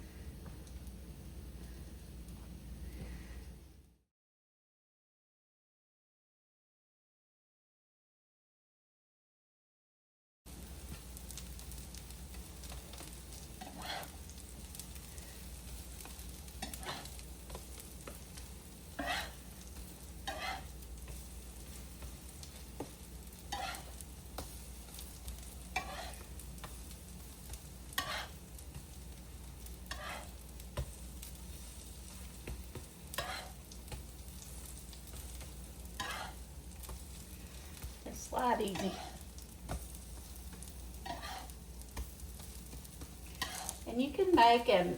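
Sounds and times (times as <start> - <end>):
fritters sizzling in oil: 10.5 - 44.9.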